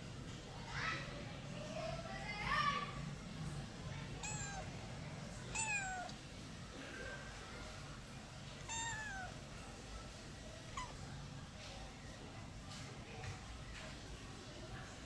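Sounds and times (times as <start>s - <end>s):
cat meowing: 4.2s - 4.7s, 5.5s - 6.2s, 8.6s - 9.4s, 10.7s - 11.0s.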